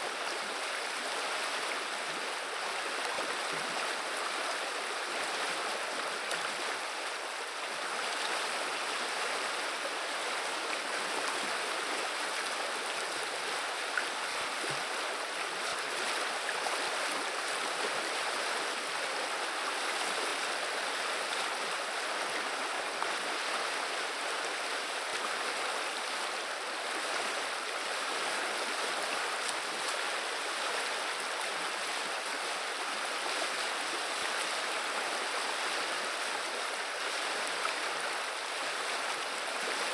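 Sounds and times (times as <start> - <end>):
river water rushing over shallows: 0.0 - 39.9.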